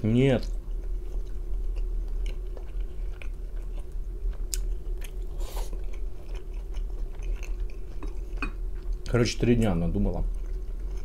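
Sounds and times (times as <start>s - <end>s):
steady low hum: 0.0s - 11.0s
person chewing vegetables: 0.4s - 11.0s.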